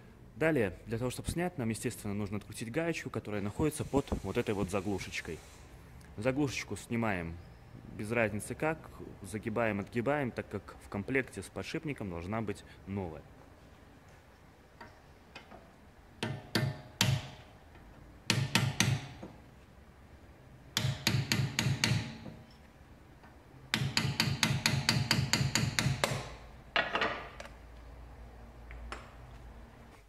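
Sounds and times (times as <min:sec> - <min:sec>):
hammer tapping metal: 0:16.2 - 0:19.4, 0:20.8 - 0:22.5, 0:23.7 - 0:27.0.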